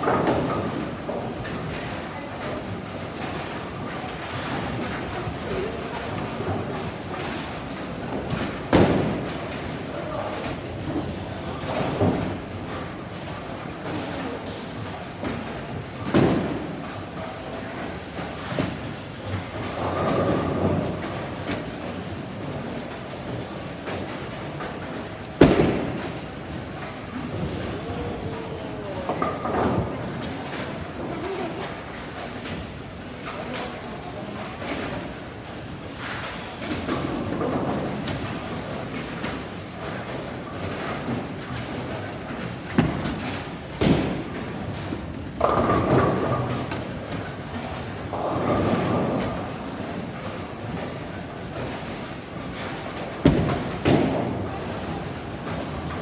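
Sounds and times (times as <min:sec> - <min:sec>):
bowling pins crashing: 0:04.2 - 0:10.9, 0:17.8 - 0:28.3, 0:36.7 - 0:56.0.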